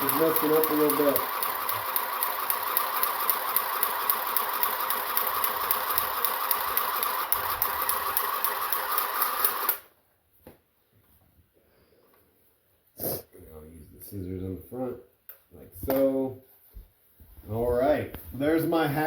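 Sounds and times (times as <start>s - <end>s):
electric sewing machine stitching: 0.0s - 9.9s.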